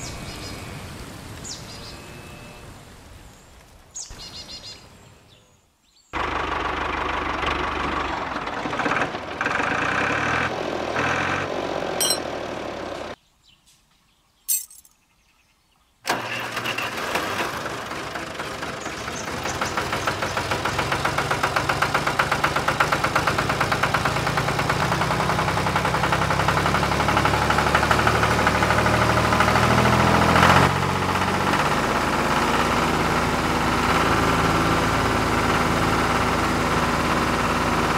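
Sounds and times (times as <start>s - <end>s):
tractor engine starting and running: 6.2s - 13.2s, 16.0s - 37.9s.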